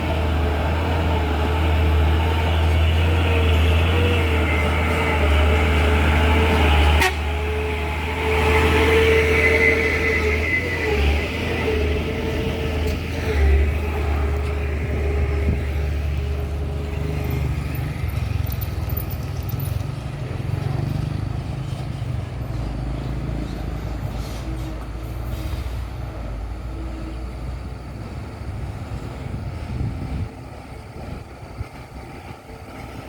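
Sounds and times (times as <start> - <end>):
diesel truck engine droning: 0.0 - 33.0.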